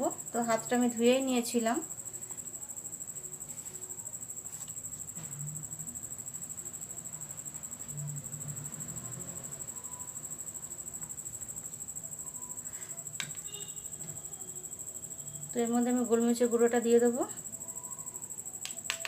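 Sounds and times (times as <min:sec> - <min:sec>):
cricket trilling: 0:00.0 - 0:19.0.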